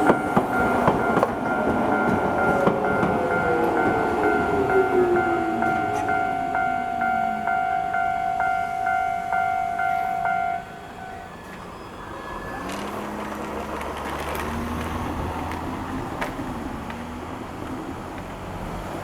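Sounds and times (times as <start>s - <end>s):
electronic bell ringing: 0.0s - 10.8s
electric train motor hum: 0.0s - 19.0s.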